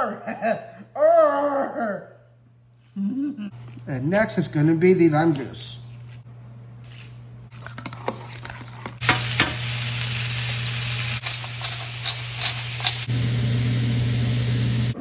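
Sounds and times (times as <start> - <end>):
noodles sizzling in a frying pan: 9.0 - 15.0.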